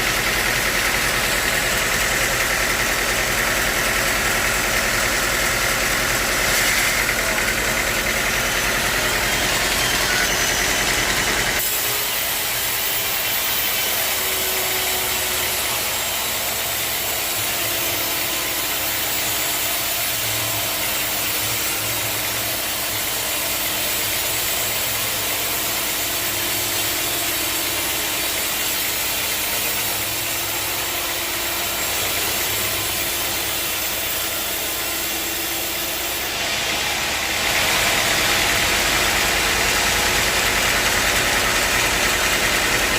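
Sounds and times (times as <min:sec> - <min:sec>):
saw cutting wood: 0:00.0 - 0:42.9.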